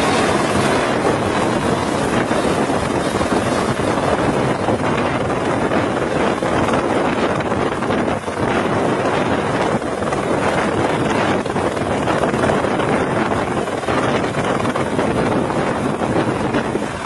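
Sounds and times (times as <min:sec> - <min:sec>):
helicopter running: 0:00.0 - 0:17.0
wind noise on microphone: 0:00.0 - 0:17.0.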